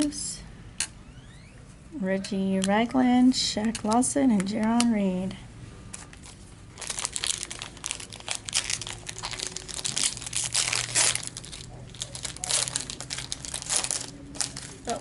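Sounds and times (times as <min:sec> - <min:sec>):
foil wrapper crinkling: 0:06.2 - 0:15.0.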